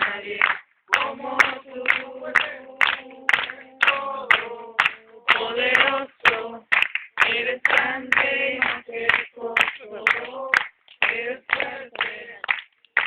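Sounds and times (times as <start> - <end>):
group singing a cappella: 0.0 - 12.6
hands clapping in time: 0.0 - 13.0.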